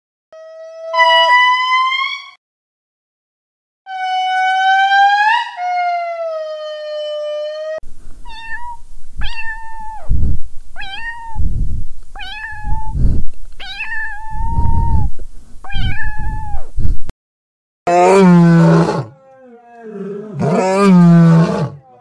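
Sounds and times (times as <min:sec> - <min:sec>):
cat meowing: 0:03.9 - 0:07.2, 0:08.2 - 0:10.1, 0:10.8 - 0:11.4, 0:12.2 - 0:13.0, 0:13.6 - 0:15.1, 0:15.7 - 0:16.7.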